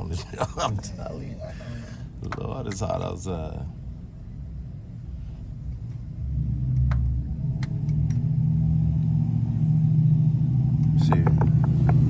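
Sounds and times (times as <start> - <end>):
vehicle engine rumbling: 3.4 - 12.0.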